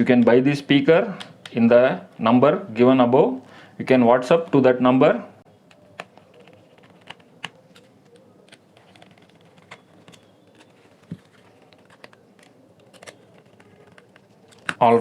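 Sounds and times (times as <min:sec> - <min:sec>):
plastic parts clicking and tapping: 0:05.6 - 0:14.9.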